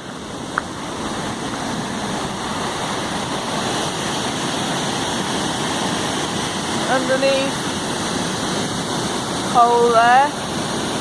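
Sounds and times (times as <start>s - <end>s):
river rapids rushing: 0.0s - 11.0s.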